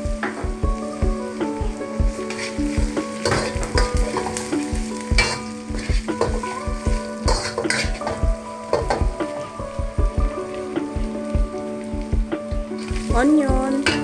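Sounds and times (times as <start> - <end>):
background music with beat: 0.0 - 14.0
garlic sizzling in hot oil: 0.0 - 14.0
metal spatula scraping wok: 2.2 - 9.7, 12.7 - 13.2, 13.8 - 14.0.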